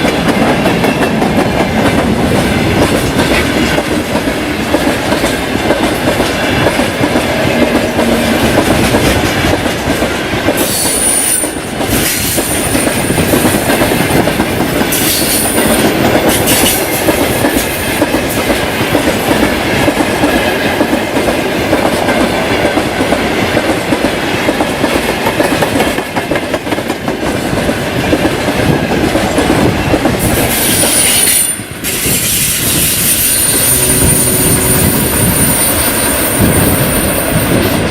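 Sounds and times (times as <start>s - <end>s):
train wheels clattering on rails: 0.0s - 37.9s
high-pitched wheel squeal: 30.6s - 37.2s.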